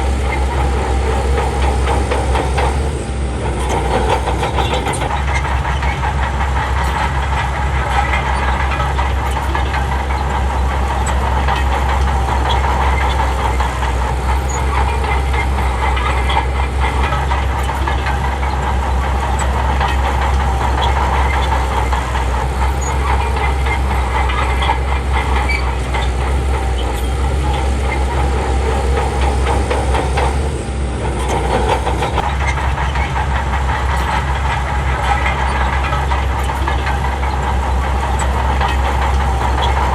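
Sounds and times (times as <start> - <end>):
heavy diesel engine running: 0.0 - 39.9
metallic clatter: 0.0 - 39.9.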